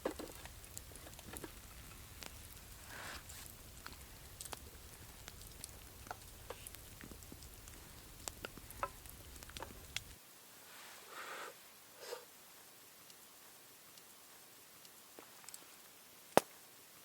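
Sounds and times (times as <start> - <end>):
campfire crackling and popping: 0.0 - 10.2, 12.4 - 17.0
low steady rumble: 0.0 - 10.2.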